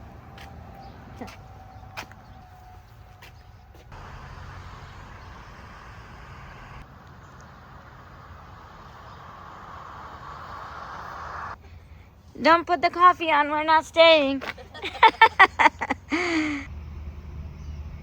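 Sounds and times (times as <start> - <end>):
moving car rush and hum: 3.2 - 11.6.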